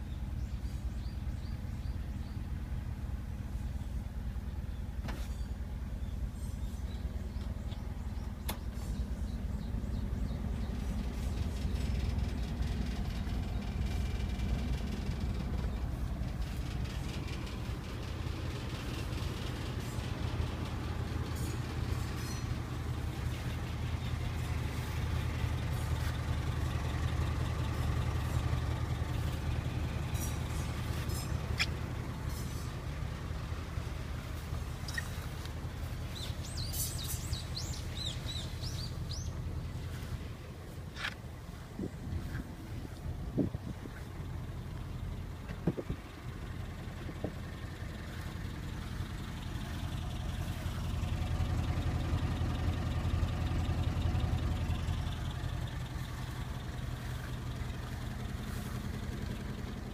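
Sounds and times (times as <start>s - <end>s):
bird chirping: 0.0s - 2.8s, 3.5s - 18.0s, 21.2s - 26.8s, 27.8s - 32.9s, 33.8s - 42.6s
truck engine idling: 0.0s - 59.9s.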